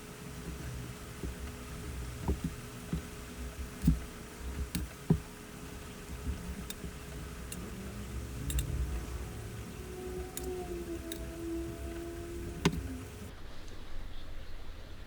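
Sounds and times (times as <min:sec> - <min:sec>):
small clicks and knocks: 0:00.0 - 0:13.3
low rumble: 0:07.5 - 0:13.3.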